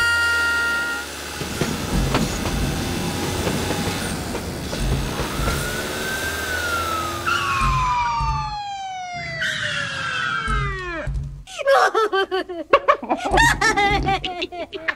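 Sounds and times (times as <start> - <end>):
siren wailing: 0.0 - 1.3, 4.8 - 11.1
train rumbling on rails: 0.0 - 8.3
sharp rail clicks: 1.4 - 6.2.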